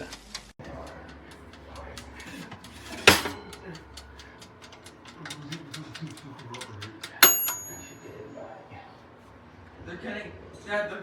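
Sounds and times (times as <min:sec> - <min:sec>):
mechanical dial timer ticking: 0:00.6 - 0:08.2.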